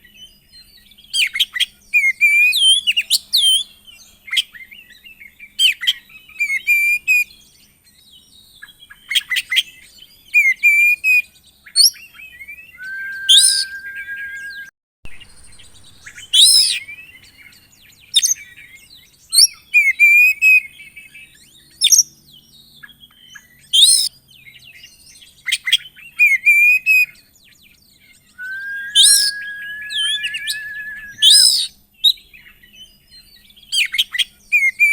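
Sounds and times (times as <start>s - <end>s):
bird singing whistles and chirps: 12.6s - 16.8s, 28.3s - 31.7s.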